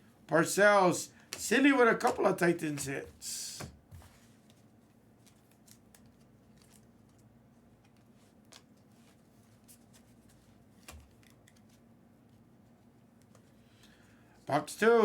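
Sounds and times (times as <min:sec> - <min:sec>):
trading cards being handled: 0:01.2 - 0:12.4.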